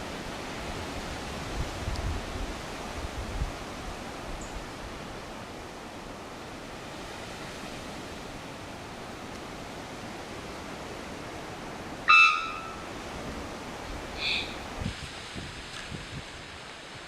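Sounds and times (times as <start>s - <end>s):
steady rush of wind or water: 0.0s - 17.0s
loud pitched call or honk: 12.1s - 12.9s.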